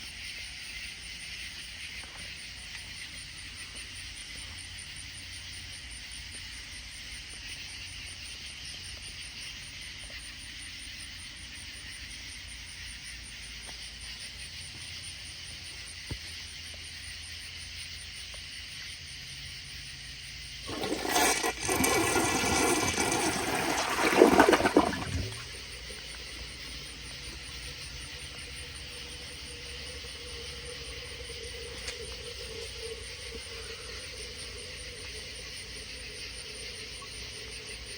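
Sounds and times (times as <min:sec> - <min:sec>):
toilet flushing: 0:20.6 - 0:37.6.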